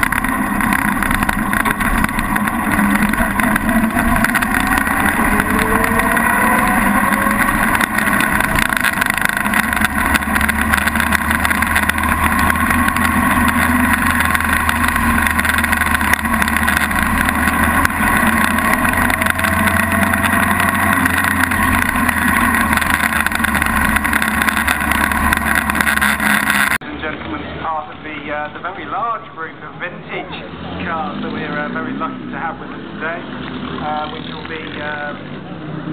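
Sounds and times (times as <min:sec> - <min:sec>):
car engine accelerating: 0:00.0 - 0:28.9, 0:29.5 - 0:35.9.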